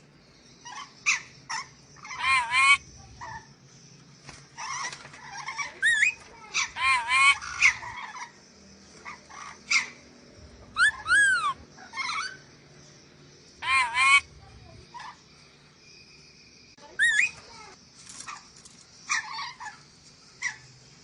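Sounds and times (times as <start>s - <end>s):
parrot shrill calls: 0.6s - 3.4s, 4.6s - 8.3s, 10.7s - 12.4s, 13.6s - 14.3s, 16.8s - 17.5s.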